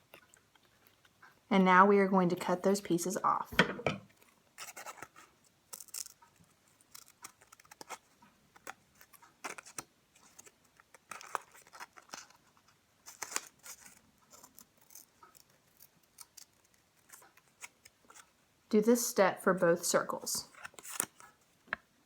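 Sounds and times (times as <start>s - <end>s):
scissors snipping paper: 4.6s - 18.3s.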